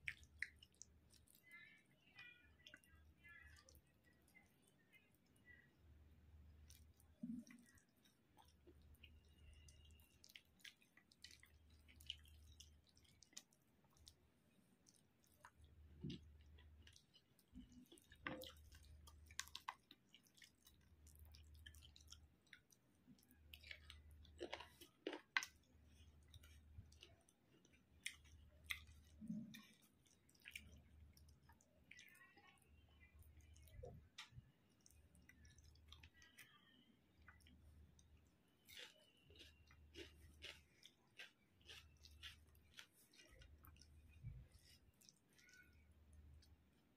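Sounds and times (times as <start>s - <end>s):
wet mouth clicks and lip smacks: 0.0s - 1.3s
faint chewing: 0.0s - 46.9s.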